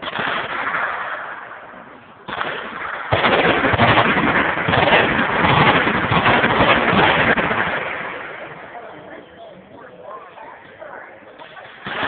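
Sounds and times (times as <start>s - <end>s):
machine guns firing: 2.3s - 8.7s, 11.4s - 12.0s.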